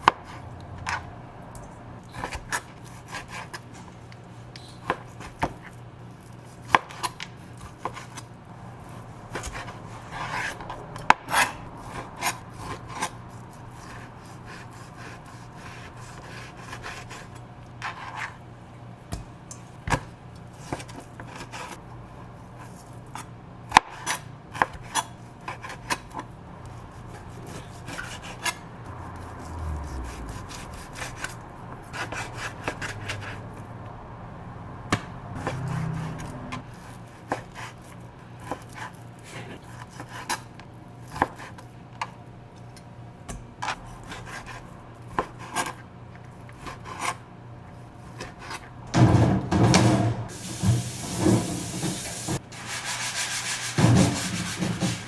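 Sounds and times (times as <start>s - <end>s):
steady low hum: 7.4s - 39.7s
scraping and rubbing: 49.7s - 55.0s.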